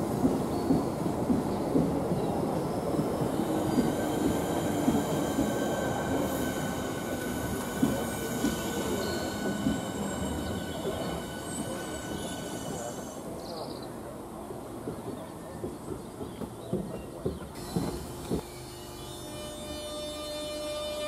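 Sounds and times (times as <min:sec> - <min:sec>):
train wheels rumbling on rails: 0:00.0 - 0:18.5
high squeal: 0:03.3 - 0:13.4.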